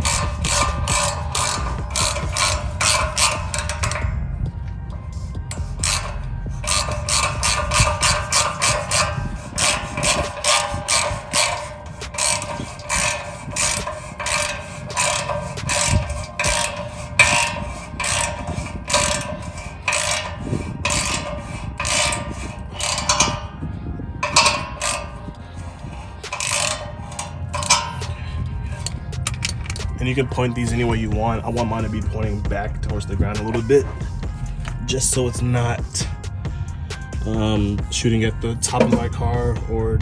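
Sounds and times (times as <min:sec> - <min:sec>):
ratchet wrench clicking: 0:00.0 - 0:04.2, 0:05.2 - 0:23.6, 0:24.2 - 0:32.2, 0:38.6 - 0:39.2.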